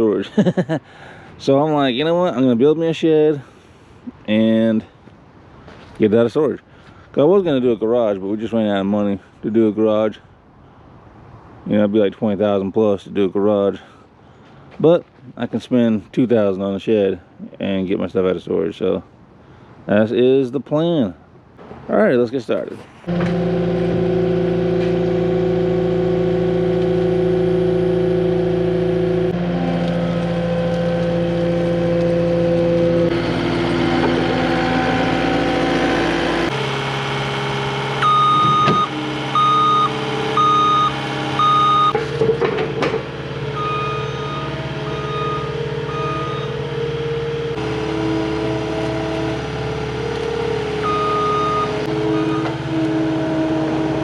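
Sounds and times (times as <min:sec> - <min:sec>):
diesel engine working: 0:23.0 - 0:54.0
backup alarm beeps: 0:38.0 - 0:42.0, 0:43.6 - 0:46.6, 0:50.8 - 0:52.6.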